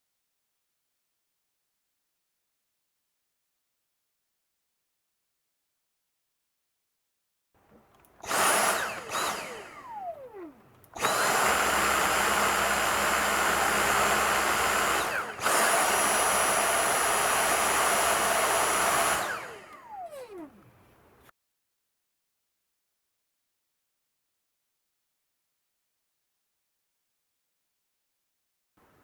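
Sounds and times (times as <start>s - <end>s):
cordless vacuum motor whine: 8.0s - 20.8s.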